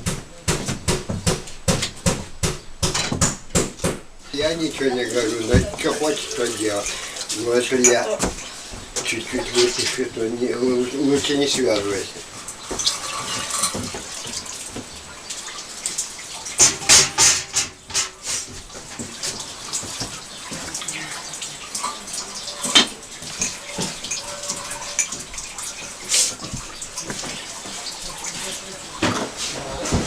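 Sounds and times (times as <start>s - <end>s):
sharp knocks: 0.0s - 4.6s, 16.6s - 18.3s.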